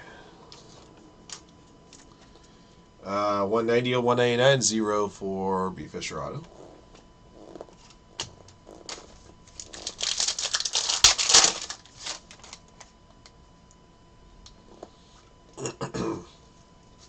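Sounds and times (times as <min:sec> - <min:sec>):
packaging crackling rustle: 0:07.8 - 0:13.0.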